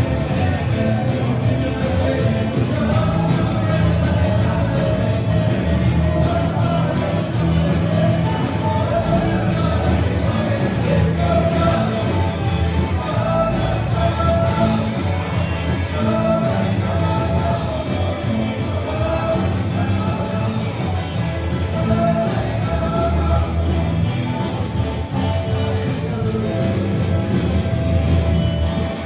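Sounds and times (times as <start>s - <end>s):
lead vocal singing: 0.0s - 28.2s
rock band playing: 0.0s - 29.0s.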